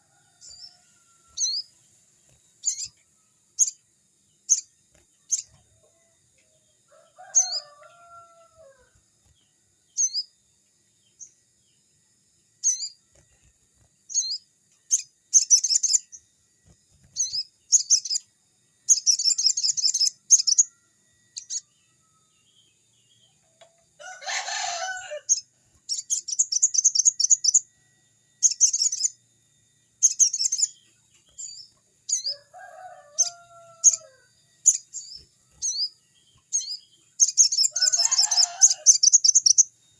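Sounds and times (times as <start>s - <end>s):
faint high-pitched whine: 0.0s - 39.9s
jay chirps and rattling trills: 28.4s - 29.2s, 30.0s - 30.8s, 36.6s - 39.8s.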